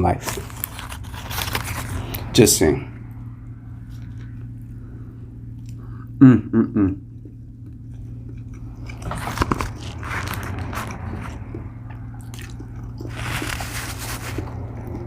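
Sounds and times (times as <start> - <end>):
biting and chewing crunchy food: 0.0 - 2.3, 3.7 - 4.8, 7.0 - 15.0
steady low hum: 0.0 - 15.0.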